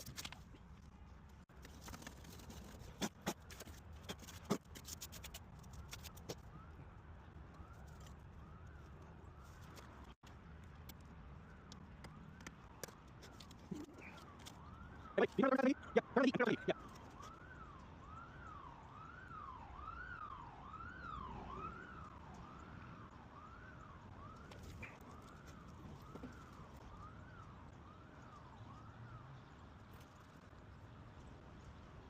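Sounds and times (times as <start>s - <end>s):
low city rumble: 0.0s - 32.0s
faint emergency siren yelping: 13.2s - 29.3s.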